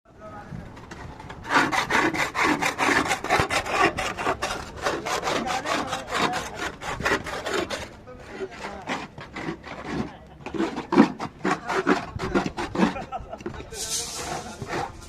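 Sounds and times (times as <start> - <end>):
hand tool rasping hard surface: 0.8 - 15.0.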